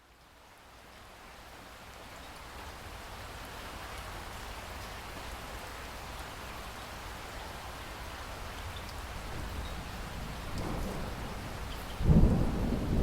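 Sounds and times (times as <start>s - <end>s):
steady rain hiss: 0.0s - 13.0s
sharp raindrop ticks: 8.5s - 13.0s.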